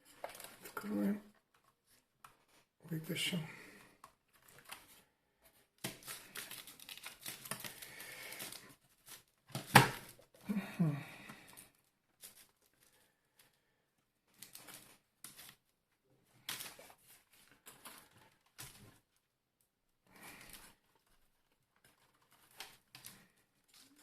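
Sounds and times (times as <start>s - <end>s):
plastic parts clicking and rustling: 0.0s - 2.7s, 3.8s - 10.4s, 14.3s - 19.2s, 20.2s - 24.0s.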